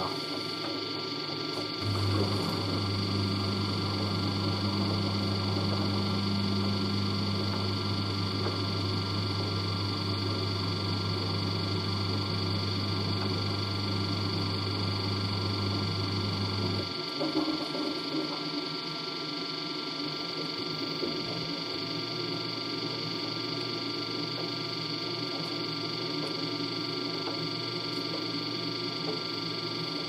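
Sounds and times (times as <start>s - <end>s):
washer dryer hum: 0.0s - 18.8s.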